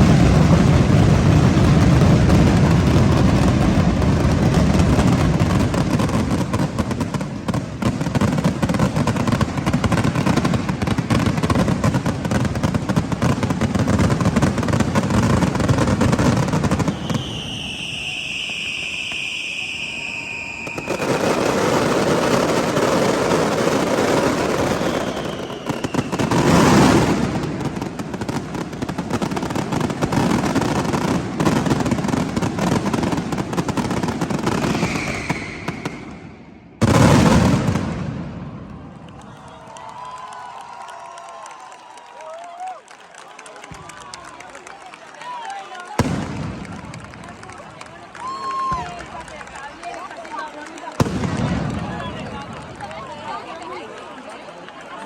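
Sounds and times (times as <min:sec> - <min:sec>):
fireworks bangs and crackling: 0:00.0 - 0:40.8, 0:41.4 - 0:55.0
whistling firework: 0:00.0 - 0:44.6, 0:45.8 - 0:50.2.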